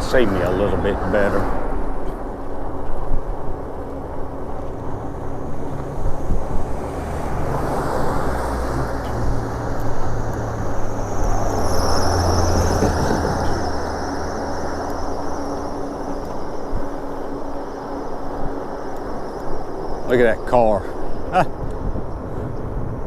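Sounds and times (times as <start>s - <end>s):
vehicle passing: 0.0s - 18.9s
wind and road noise: 0.0s - 23.0s.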